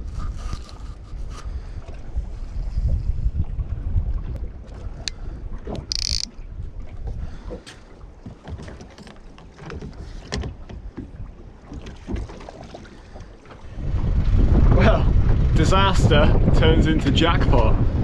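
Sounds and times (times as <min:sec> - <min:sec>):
wind buffeting microphone: 0:00.0 - 0:08.2, 0:13.6 - 0:18.0
water moving around a boat: 0:00.0 - 0:18.0.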